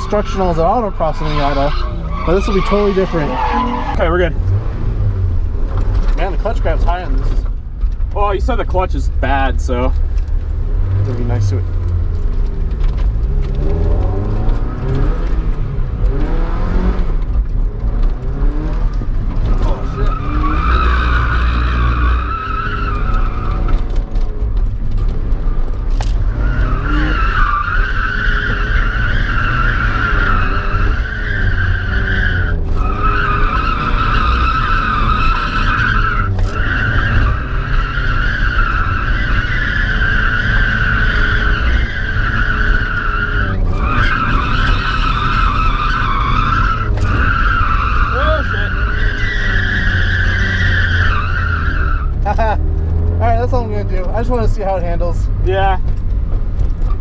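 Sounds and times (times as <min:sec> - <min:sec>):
tyres squealing: 0:00.0 - 0:04.3, 0:19.4 - 0:23.9, 0:26.2 - 0:52.7
car engine revving: 0:00.0 - 0:57.0.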